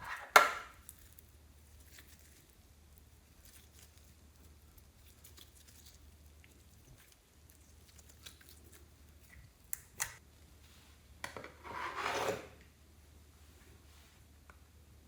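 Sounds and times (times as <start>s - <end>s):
wet slime squishing: 0.7s - 10.2s.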